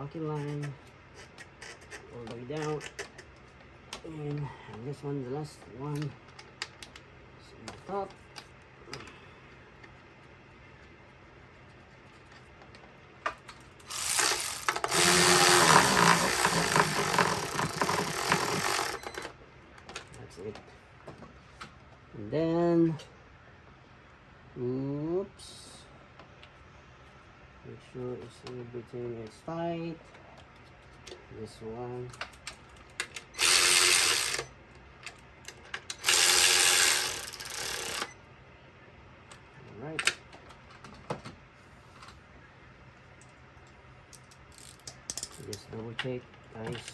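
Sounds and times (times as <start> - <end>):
power tool running rattly: 13.8 - 19.3, 33.4 - 34.5, 36.0 - 38.1
ratchet wrench tightening: 13.8 - 19.3, 33.4 - 34.5, 35.9 - 38.1, 44.2 - 45.6.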